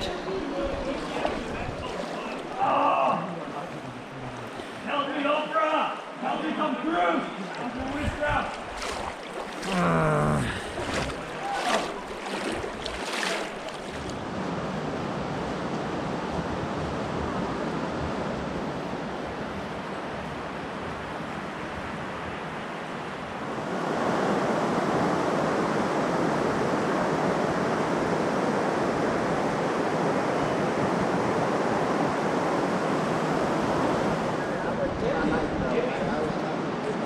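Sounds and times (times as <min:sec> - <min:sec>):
flowing water rushing: 0:00.0 - 0:14.6.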